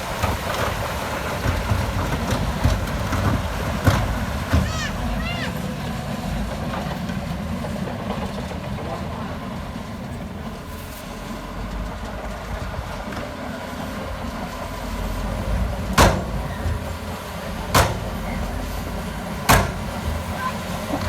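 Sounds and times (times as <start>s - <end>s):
heavy diesel engine rumbling: 0.0s - 21.0s
sharp bangs: 19.2s - 20.7s.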